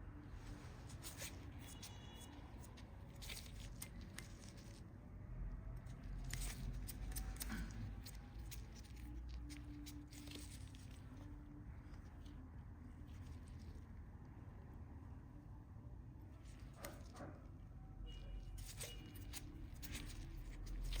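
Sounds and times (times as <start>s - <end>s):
nail tools clicking and snipping: 6.2s - 8.9s.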